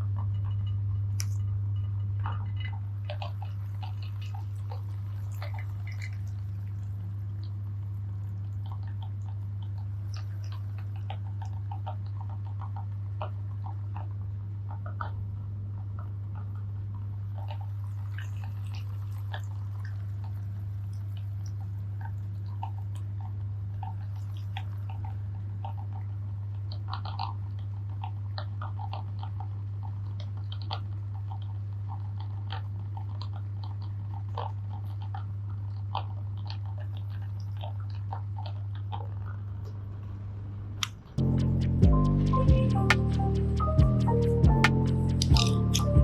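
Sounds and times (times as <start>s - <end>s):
cookies crunching: 45.1s - 46.0s.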